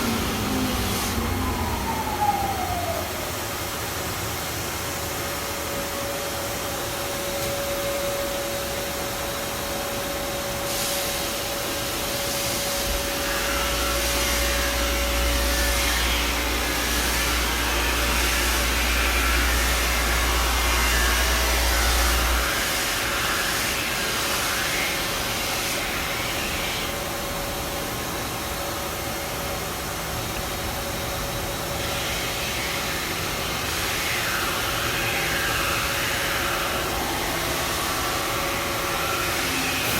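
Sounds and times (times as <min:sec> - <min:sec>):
deep grinding rumble: 0:00.0 - 0:03.5
grinding machine humming: 0:00.0 - 0:10.7, 0:11.4 - 0:39.9.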